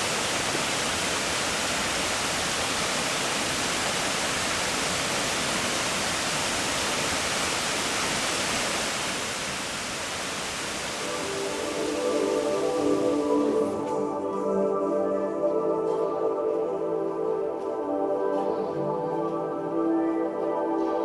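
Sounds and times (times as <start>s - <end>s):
waterfall rushing: 0.0s - 13.8s
soft ambient music: 10.9s - 21.0s.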